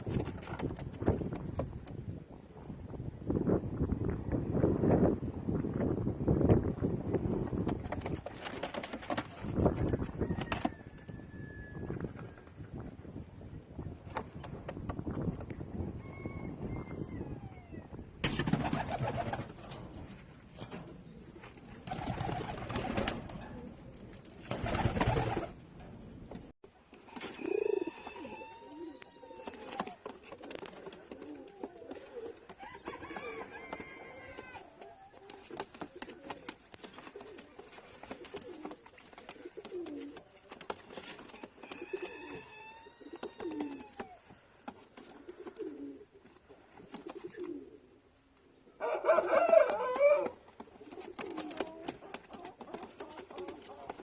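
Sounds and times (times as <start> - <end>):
pigeons cooing: 27.2 - 40.3, 41.4 - 44.3, 45.0 - 54.0.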